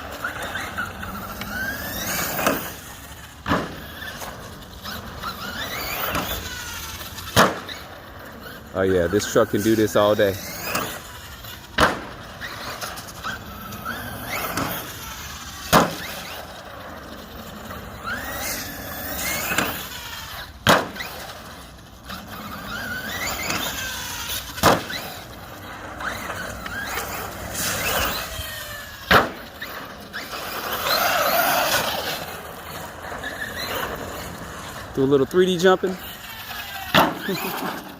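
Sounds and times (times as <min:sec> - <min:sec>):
electric motor whining: 0:00.0 - 0:37.9
toy truck landing thuds: 0:07.3 - 0:07.8, 0:11.8 - 0:12.2, 0:15.6 - 0:16.2, 0:20.6 - 0:21.2, 0:24.6 - 0:25.2, 0:29.1 - 0:29.4.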